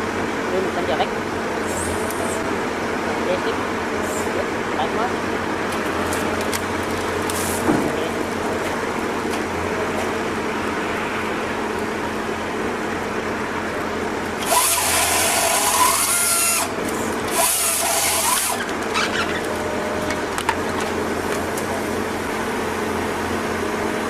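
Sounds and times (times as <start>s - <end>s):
harsh cutting bursts: 14.4s - 19.3s
power tool running: 14.4s - 20.1s.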